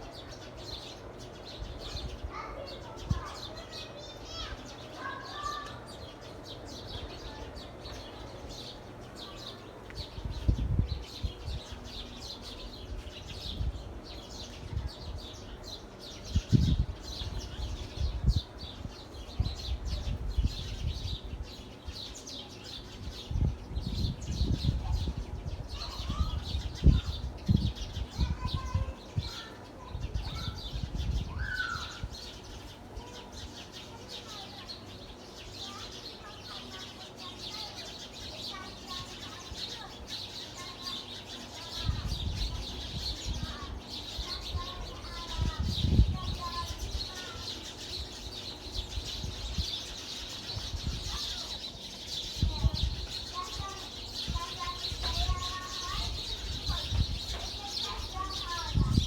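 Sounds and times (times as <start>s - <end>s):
small birds chirping chorus: 0.0s - 59.0s
lower bird calls: 22.9s - 33.6s.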